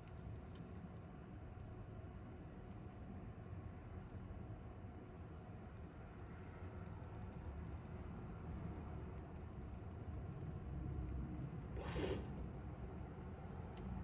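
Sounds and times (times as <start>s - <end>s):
short hiss: 11.8s - 12.3s.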